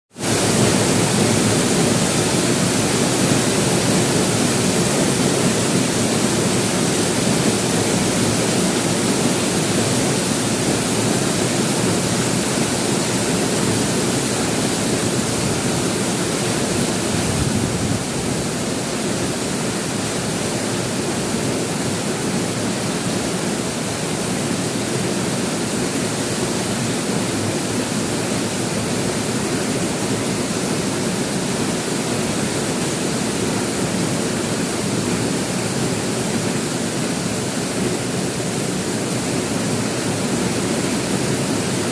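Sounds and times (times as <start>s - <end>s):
heavy rain falling: 0.2s - 41.9s.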